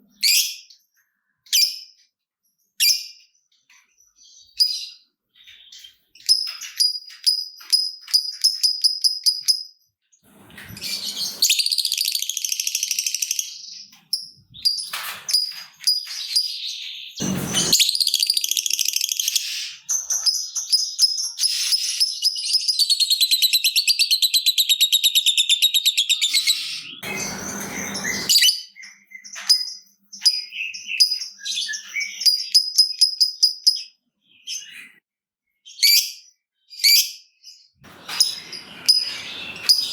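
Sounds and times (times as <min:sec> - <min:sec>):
birds clicking chirps: 0:02.8 - 0:09.8, 0:10.5 - 0:33.9, 0:37.8 - 0:39.9
bird rapid chatter: 0:10.4 - 0:13.4, 0:17.2 - 0:19.9, 0:26.0 - 0:28.6, 0:37.9 - 0:39.9
bird screeches: 0:17.2 - 0:18.3, 0:26.3 - 0:28.6.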